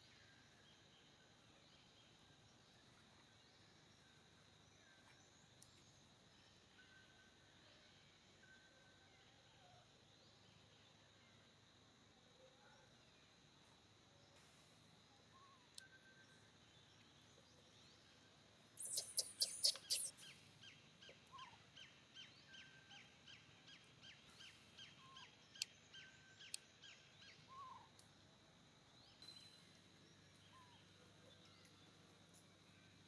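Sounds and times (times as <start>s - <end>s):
sharp clicks: 18.8s - 20.2s
high falling bird chirps: 18.8s - 20.4s.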